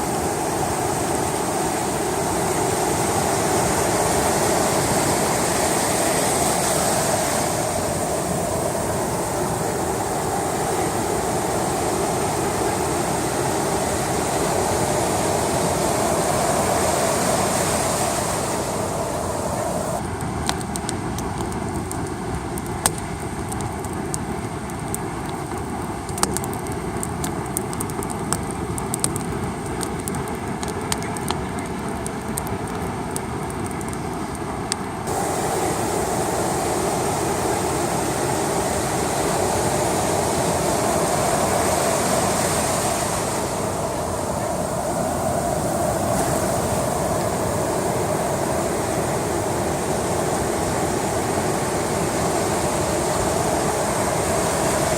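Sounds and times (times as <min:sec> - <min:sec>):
steady rushing noise: 0:00.0 - 0:54.9
campfire crackling and popping: 0:19.3 - 0:35.2.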